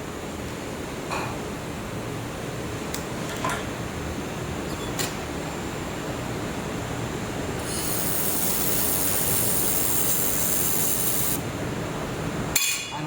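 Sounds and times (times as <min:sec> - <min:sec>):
welder machine noise: 0:07.3 - 0:11.5
welding gun high hiss: 0:07.6 - 0:11.4.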